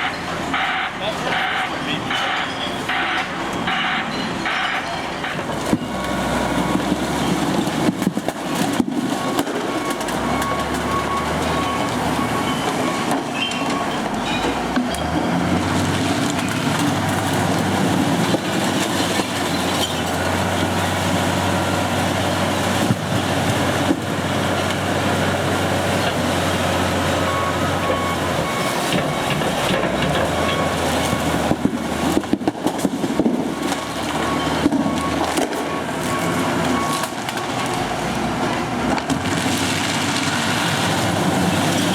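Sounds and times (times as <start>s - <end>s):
low engine hum: 14.0s - 41.9s.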